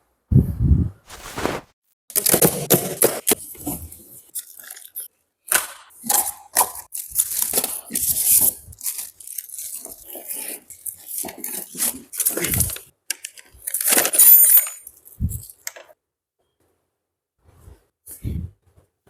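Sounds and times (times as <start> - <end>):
packaging rustling and tearing: 1.1 - 2.4.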